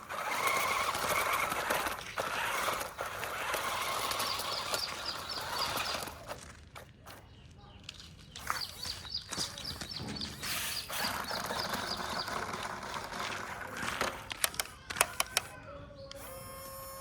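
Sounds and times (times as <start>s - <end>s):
small electric motor whine: 0.0s - 6.3s, 14.9s - 17.0s
toy truck scraping and rattling: 0.0s - 7.2s, 7.9s - 15.5s
sharp plastic clicks: 14.0s - 15.5s.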